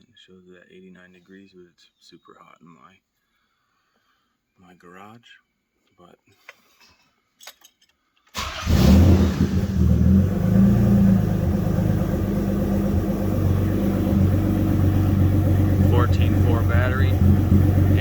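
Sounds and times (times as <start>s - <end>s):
car engine starting and idling: 8.4s - 18.0s.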